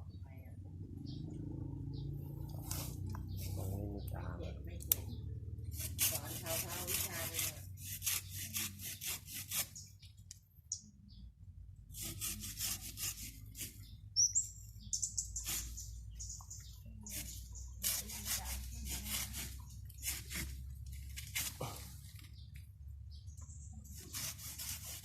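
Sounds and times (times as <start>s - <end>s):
bird chirping: 0.0s - 6.6s, 8.2s - 11.4s, 12.3s - 20.5s, 21.6s - 24.1s
hand saw cutting branch: 5.7s - 9.8s, 11.9s - 13.8s, 17.1s - 22.0s, 23.9s - 25.0s.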